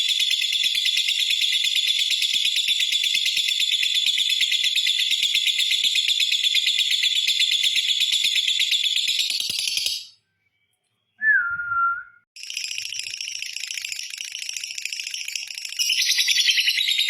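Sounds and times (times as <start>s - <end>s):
whistled note sliding down: 11.2s - 12.2s
lovebird rapid chattering: 12.4s - 17.0s.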